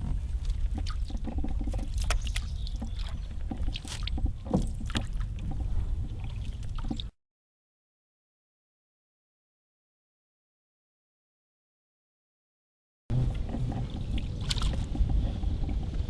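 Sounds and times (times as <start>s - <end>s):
paddle splashing in water: 0.0s - 7.1s, 13.1s - 16.0s
steady low rumble: 13.1s - 16.0s.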